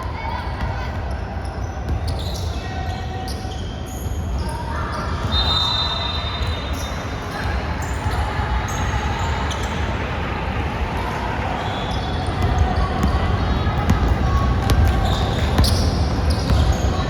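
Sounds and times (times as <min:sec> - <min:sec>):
voices in background: 0:00.0 - 0:17.0
basketball bouncing on court: 0:12.2 - 0:17.0.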